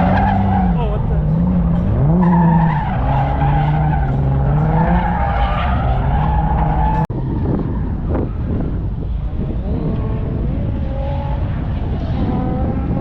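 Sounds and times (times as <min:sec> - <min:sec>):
car engine at high revs: 0:00.0 - 0:13.0.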